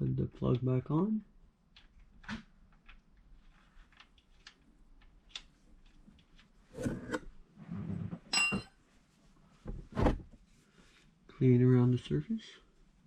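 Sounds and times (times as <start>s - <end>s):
metallic clink: 8.3s - 8.7s.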